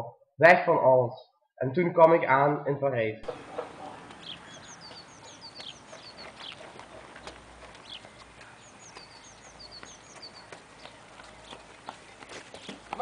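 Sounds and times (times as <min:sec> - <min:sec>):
outdoor ambience: 0:03.2 - 0:13.0
songbird chirping: 0:03.2 - 0:13.0.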